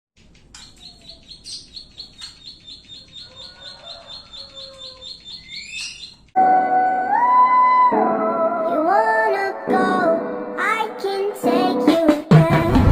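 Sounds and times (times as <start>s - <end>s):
songbird chirping: 0.2s - 6.4s
loud music with singing: 9.6s - 12.9s.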